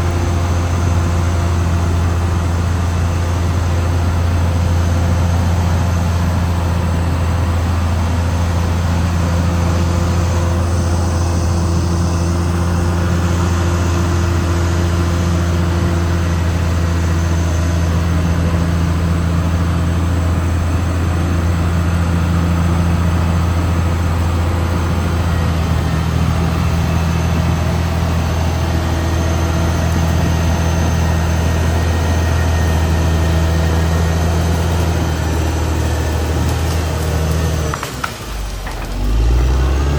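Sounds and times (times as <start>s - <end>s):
bulldozer diesel engine drone: 0.0s - 39.9s.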